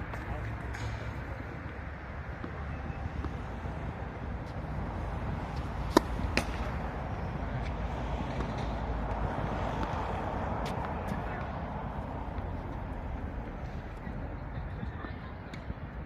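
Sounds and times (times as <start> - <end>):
tennis ball impacts: 5.2 - 11.6.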